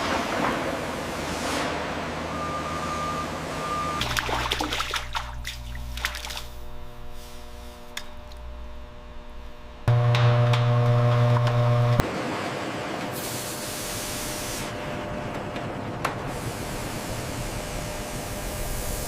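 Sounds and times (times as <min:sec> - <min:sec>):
loud steady machine hum: 0:02.2 - 0:19.0
low machine hum: 0:02.3 - 0:12.1
machinery rushing hiss: 0:06.5 - 0:07.9, 0:16.3 - 0:19.0.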